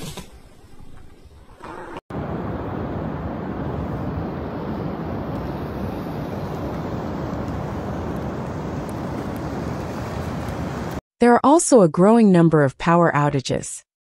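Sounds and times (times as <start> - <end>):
wind blowing across microphone: 2.1 - 11.0.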